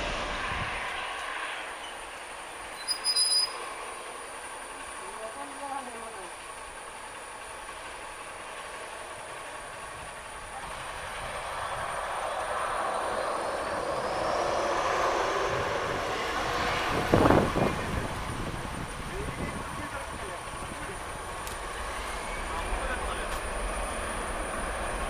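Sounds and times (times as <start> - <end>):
jet airliner passing: 0.0 - 2.8, 9.8 - 25.0
high engine whine: 0.0 - 25.0.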